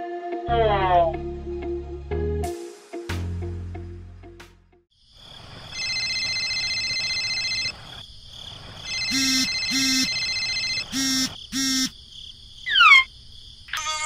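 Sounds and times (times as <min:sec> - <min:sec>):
phone ringtone: 0:05.7 - 0:07.8, 0:08.8 - 0:11.9
phone buzzing: 0:05.7 - 0:07.9, 0:08.8 - 0:11.9.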